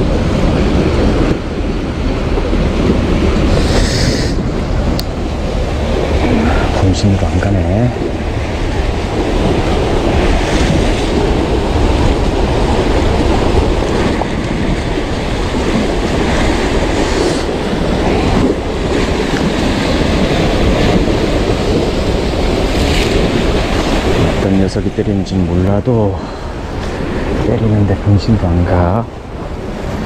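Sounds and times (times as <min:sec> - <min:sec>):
surf washing against rocks: 0:00.0 - 0:30.0
wind buffeting microphone: 0:00.0 - 0:30.0.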